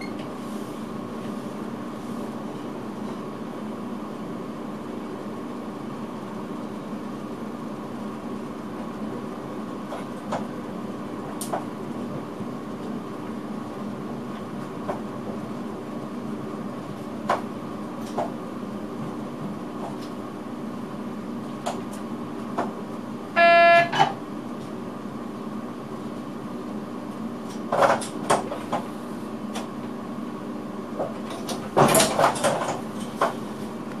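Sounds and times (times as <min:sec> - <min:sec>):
electric train hum: 0:00.0 - 0:34.0
short single-pitched tone: 0:23.4 - 0:24.1.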